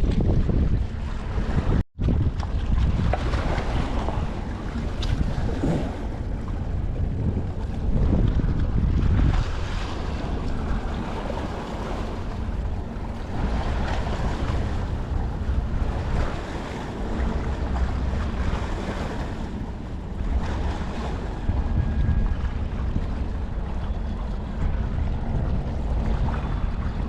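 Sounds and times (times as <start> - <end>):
seawater washing against shore: 0.0 - 27.0
wind buffeting microphone: 0.0 - 27.0.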